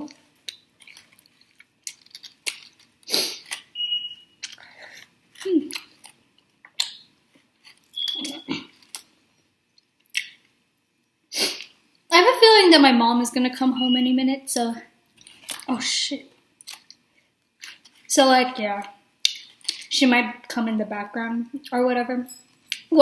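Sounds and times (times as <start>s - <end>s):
person chewing and mouth smacks: 0.4s - 3.7s, 4.4s - 9.1s, 10.0s - 10.5s.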